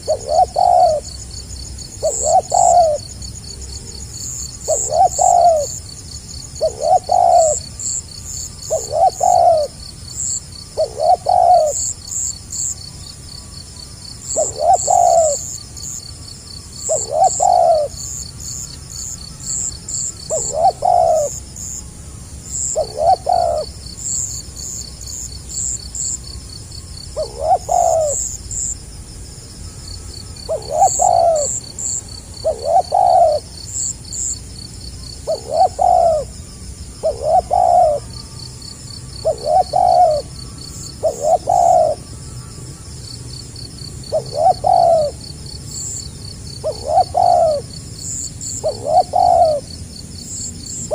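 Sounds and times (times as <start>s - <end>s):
dove cooing: 0.0s - 12.4s, 14.2s - 21.5s, 22.5s - 26.2s, 27.0s - 28.7s, 30.2s - 36.4s, 37.0s - 42.8s, 43.8s - 46.0s, 46.6s - 50.9s
high pulsing chirp: 2.0s - 3.1s, 29.6s - 36.3s.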